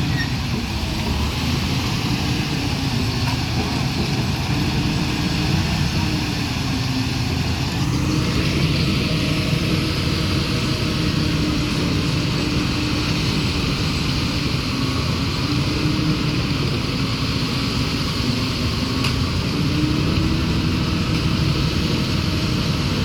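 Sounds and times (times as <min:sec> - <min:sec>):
heavy machinery engine running: 0:00.0 - 0:23.0.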